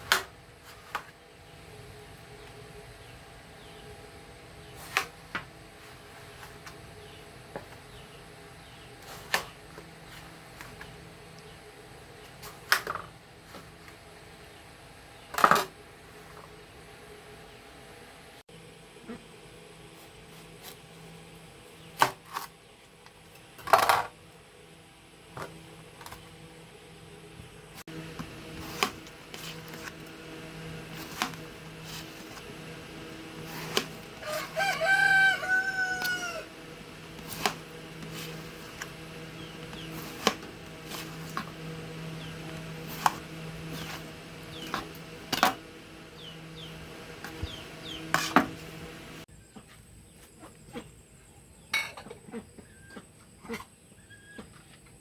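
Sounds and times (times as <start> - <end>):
rooster crowing: 33.0 - 38.4.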